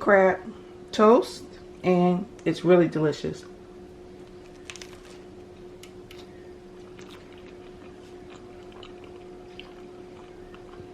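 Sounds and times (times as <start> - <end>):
steady low hum: 0.0 - 10.9
person chewing crunchy bread: 4.4 - 10.9.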